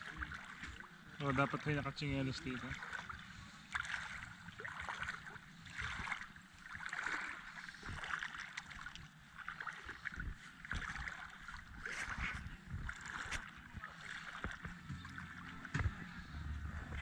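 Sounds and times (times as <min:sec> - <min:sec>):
water splashing at shore: 0:00.0 - 0:17.0
wind rumble on microphone: 0:09.9 - 0:17.0.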